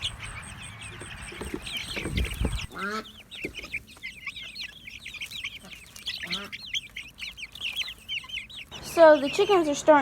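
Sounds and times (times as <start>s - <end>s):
chicks peeping: 0.0s - 10.0s
hen squawking: 0.0s - 10.0s
wind on microphone: 1.3s - 2.7s.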